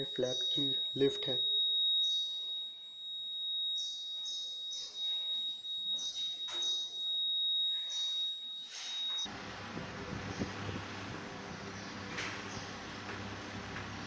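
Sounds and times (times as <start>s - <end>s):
high-pitched electronic tone: 0.0s - 2.8s.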